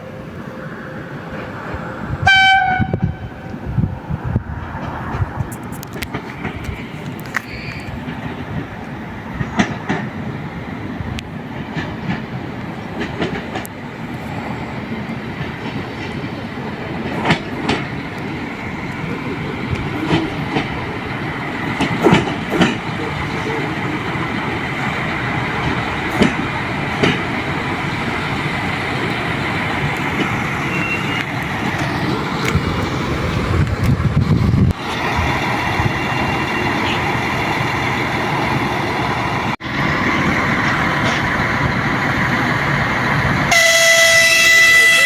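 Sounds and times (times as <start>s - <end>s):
train rolling on track: 0.0s - 45.0s
wheel clicks over rail joints: 15.3s - 38.7s.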